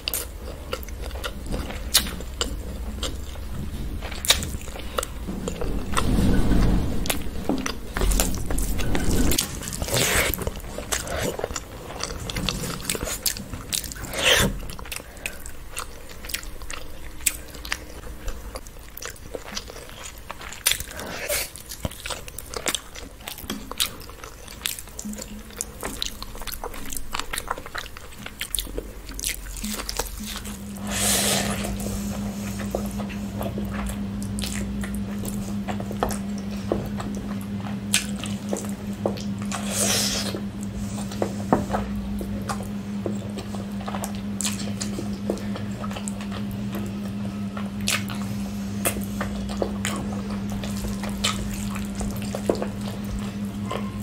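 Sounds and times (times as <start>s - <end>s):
chewing and wet mouth clicks: 0.0s - 3.5s, 32.5s - 54.0s
steady low hum: 0.0s - 54.0s.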